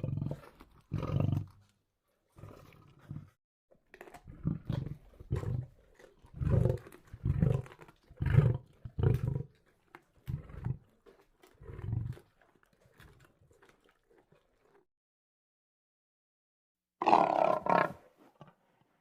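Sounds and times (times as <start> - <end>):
lion roaring: 17.0 - 18.0.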